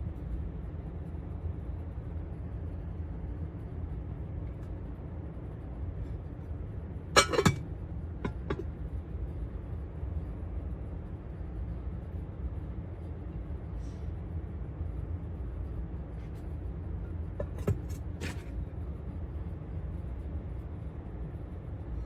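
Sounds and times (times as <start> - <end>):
steady low hum: 0.0 - 22.0
ceramic bowls clinking: 7.2 - 7.6, 8.3 - 8.6.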